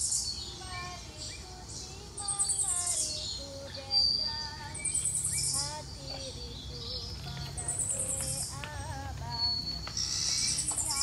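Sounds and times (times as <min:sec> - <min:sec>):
birds whistling: 0:00.0 - 0:11.0
high fast bird trills: 0:09.4 - 0:11.0.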